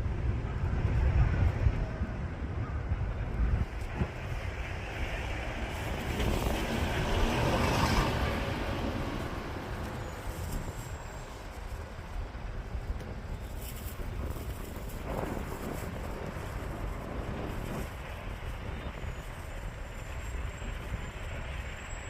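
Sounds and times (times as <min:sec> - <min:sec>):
wind noise on microphone: 0:00.0 - 0:22.0
road vehicle passing: 0:03.6 - 0:11.7.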